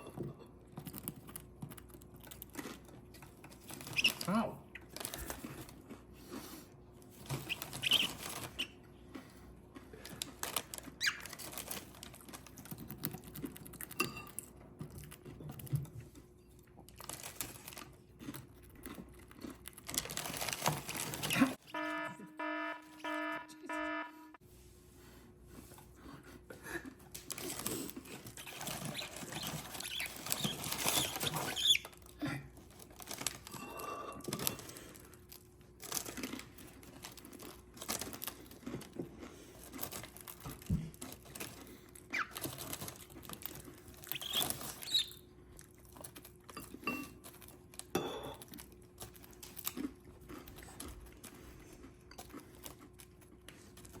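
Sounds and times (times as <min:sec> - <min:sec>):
bird chirps: 0:44.1 - 0:45.2.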